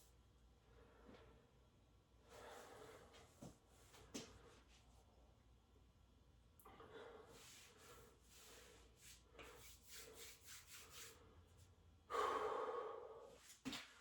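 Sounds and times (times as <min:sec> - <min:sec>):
man breathing hard: 0:02.2 - 0:03.5, 0:06.6 - 0:08.9, 0:12.1 - 0:13.6.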